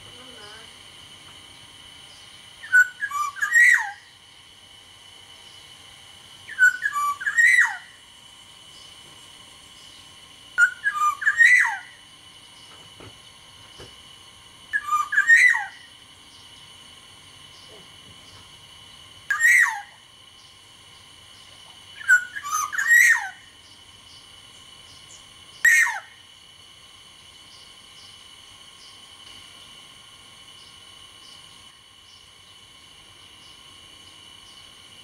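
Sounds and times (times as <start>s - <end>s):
bird fluty whistled song: 2.1s - 4.2s, 6.4s - 8.0s, 9.8s - 12.8s, 14.7s - 16.7s, 19.3s - 26.2s.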